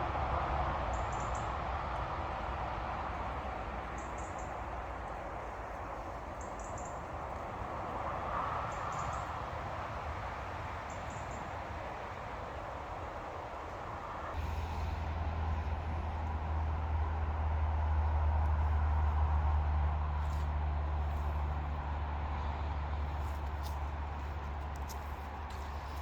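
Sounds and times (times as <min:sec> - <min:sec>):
outdoor background rush: 0:00.0 - 0:26.0.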